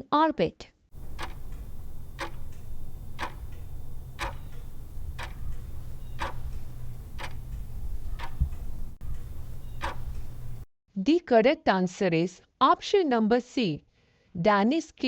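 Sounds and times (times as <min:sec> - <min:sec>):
clock ticking: 0:01.0 - 0:10.7
low hum: 0:01.0 - 0:10.7.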